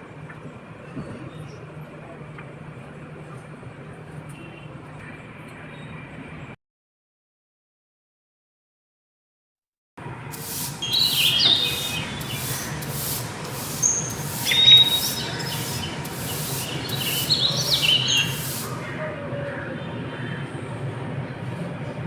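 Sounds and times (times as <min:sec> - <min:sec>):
birds chirping: 0:10.6 - 0:19.2
rhythmic scraping strokes: 0:10.7 - 0:18.7.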